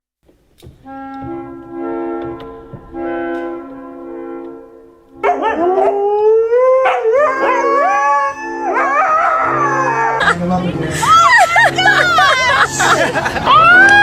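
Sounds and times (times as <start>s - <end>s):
background music: 0.4s - 14.0s
dog howling: 5.2s - 10.3s.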